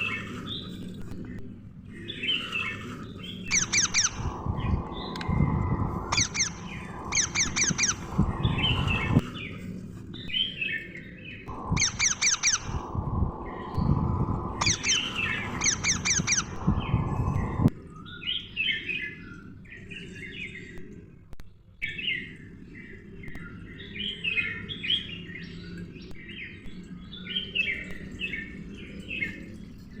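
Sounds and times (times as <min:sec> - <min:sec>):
parrots chirping and squawking: 0:03.5 - 0:04.5, 0:06.1 - 0:09.1, 0:11.6 - 0:12.9, 0:14.6 - 0:16.8
loud low rumbling: 0:03.6 - 0:09.2, 0:11.5 - 0:17.7.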